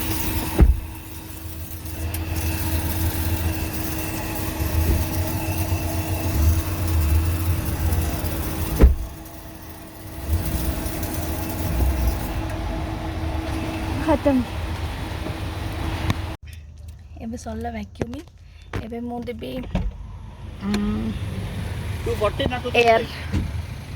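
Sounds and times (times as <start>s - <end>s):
car vacuum humming: 0.0s - 16.4s, 20.2s - 23.9s.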